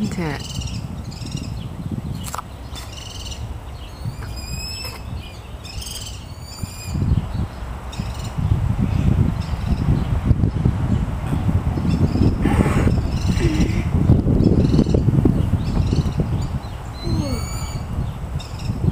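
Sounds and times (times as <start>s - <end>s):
short high bird calls: 16.9s - 18.8s.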